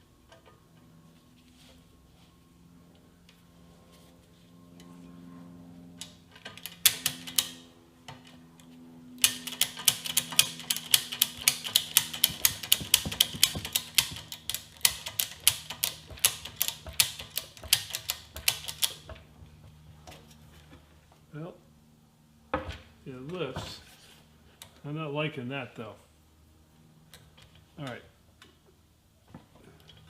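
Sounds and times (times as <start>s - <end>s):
ratchet strap pawl clicking: 9.2s - 19.1s.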